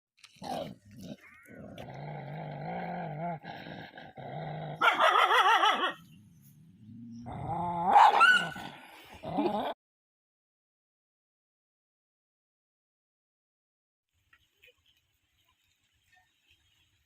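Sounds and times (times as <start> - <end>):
dog growling low: 0.4 - 4.8, 6.2 - 9.8.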